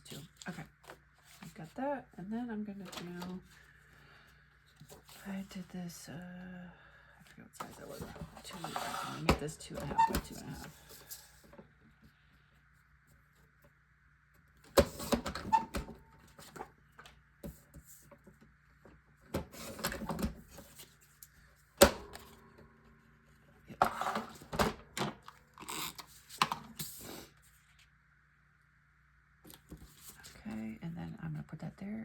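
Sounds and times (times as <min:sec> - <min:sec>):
paper rustling and scraping: 0:07.7 - 0:11.4, 0:29.5 - 0:30.5.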